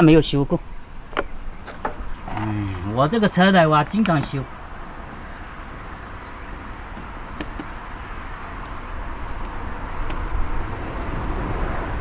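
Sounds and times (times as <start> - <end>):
insects chirping: 0.0 - 12.0
pulsing insect trill: 0.0 - 12.0
faint clicks: 9.4 - 10.2.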